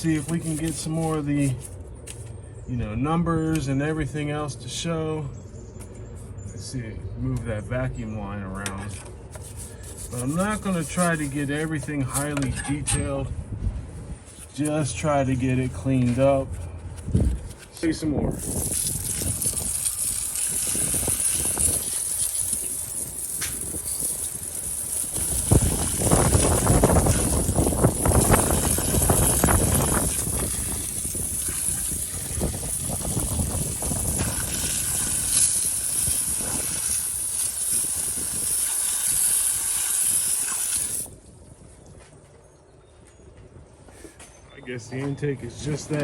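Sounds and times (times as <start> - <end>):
stiff brush scrubbing engine: 0.0 - 2.2, 8.6 - 13.2, 14.0 - 41.1.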